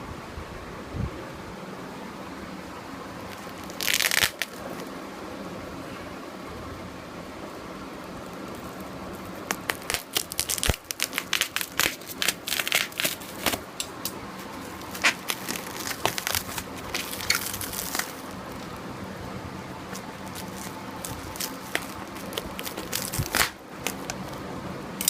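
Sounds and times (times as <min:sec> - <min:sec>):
packaging crinkling and crackling: 0:03.2 - 0:05.0, 0:08.2 - 0:18.9, 0:19.7 - 0:24.5.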